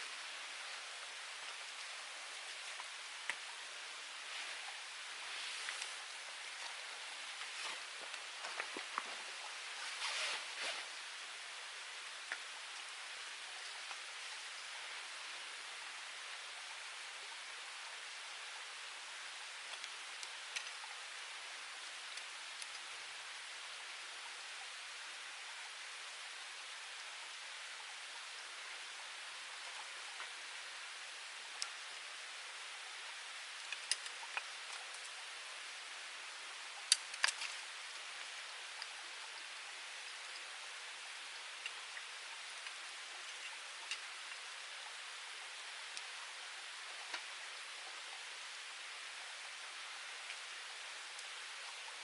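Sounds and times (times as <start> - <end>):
wood fire hissing: 0.0 - 16.5
steady hiss: 0.0 - 52.0
wood fire crackling: 4.2 - 11.0, 33.6 - 35.2, 36.8 - 38.9.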